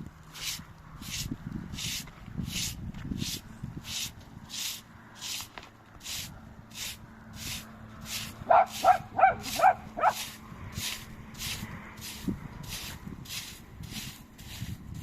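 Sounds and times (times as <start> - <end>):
dog barking: 8.5 - 10.2.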